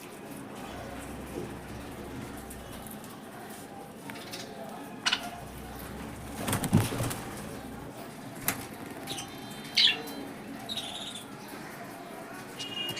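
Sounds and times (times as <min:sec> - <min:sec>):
wings flapping: 0:05.1 - 0:09.3.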